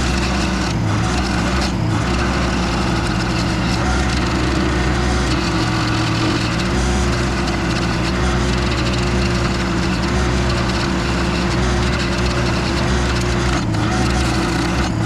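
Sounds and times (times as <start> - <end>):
machine engine running: 0.0 - 15.0
stump grinder cutting wood: 0.0 - 15.0.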